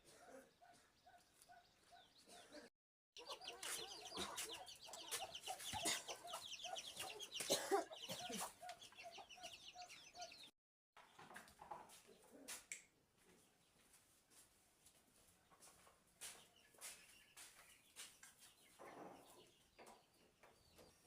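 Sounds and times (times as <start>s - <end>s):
chickens clucking: 2.0s - 12.5s.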